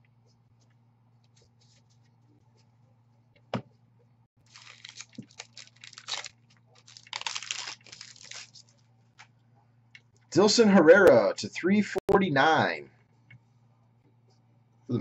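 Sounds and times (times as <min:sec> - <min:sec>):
plastic foil wrapper tearing: 0:04.4 - 0:08.7.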